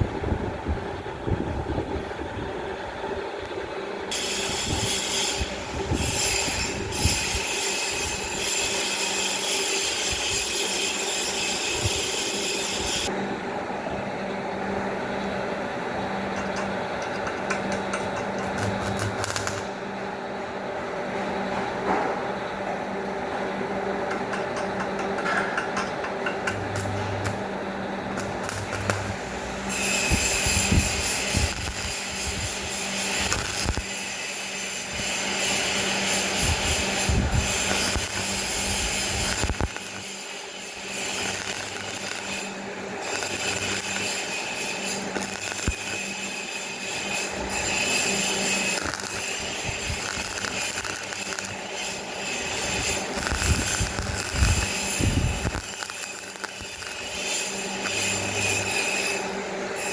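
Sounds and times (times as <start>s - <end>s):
steady hum: 13.0s - 59.9s.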